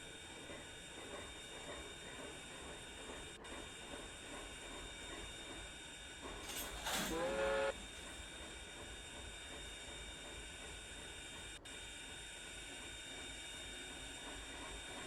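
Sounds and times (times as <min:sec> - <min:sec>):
steam locomotive whistle: 0:06.8 - 0:07.8.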